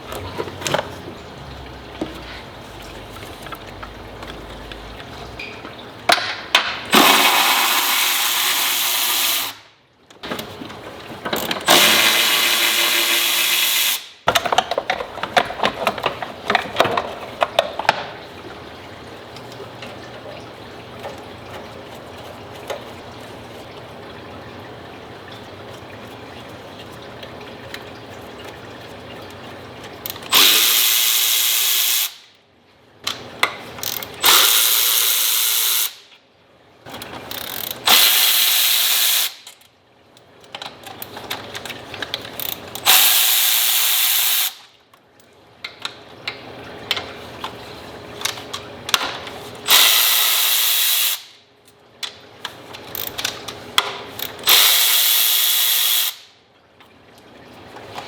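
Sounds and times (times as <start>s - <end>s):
power tool running: 11.7s - 14.0s, 49.7s - 51.3s.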